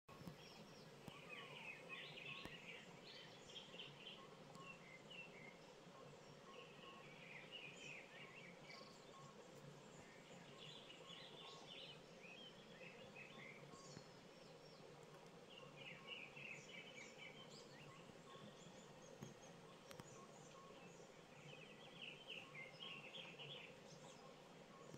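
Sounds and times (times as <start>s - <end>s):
low background hum: 0.1s - 24.9s
small birds chirping: 0.1s - 24.9s.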